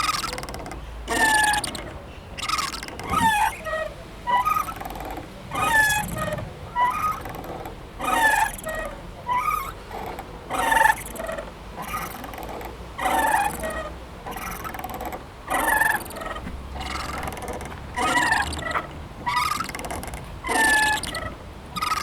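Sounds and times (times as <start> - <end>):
swing chains squeaking: 0.0 - 22.0.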